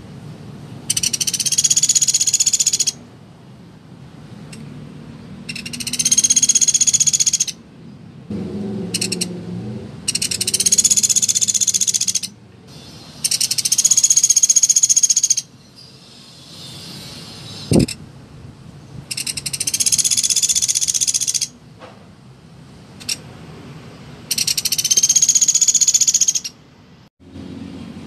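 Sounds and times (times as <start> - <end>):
woodpecker rattling trill calls: 0.8 - 3.0, 5.5 - 7.6, 9.0 - 9.3, 10.1 - 18.0, 19.1 - 21.6, 24.3 - 26.6.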